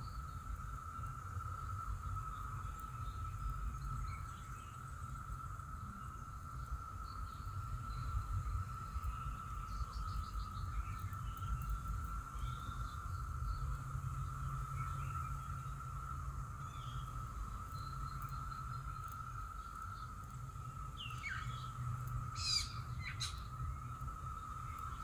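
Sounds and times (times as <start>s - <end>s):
chorus of cicadas droning: 0.0s - 25.0s.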